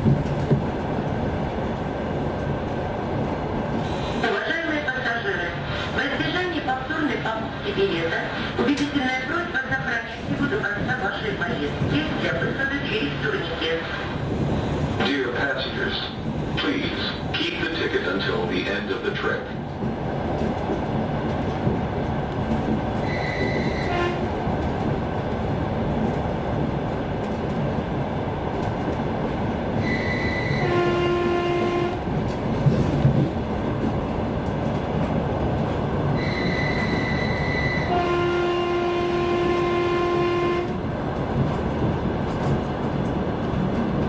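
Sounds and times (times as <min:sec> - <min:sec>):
train running rumble: 0:00.0 - 0:44.0
train horn signals: 0:23.0 - 0:24.4, 0:29.8 - 0:32.0, 0:36.2 - 0:40.8.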